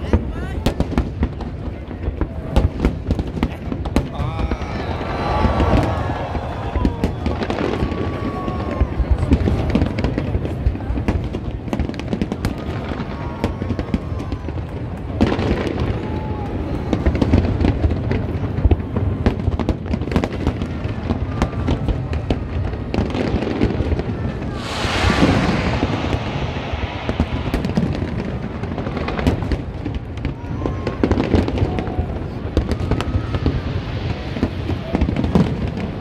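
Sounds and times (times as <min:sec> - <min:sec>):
crackling firework hiss: 0:00.0 - 0:36.0
firework bangs and cracks: 0:00.0 - 0:36.0.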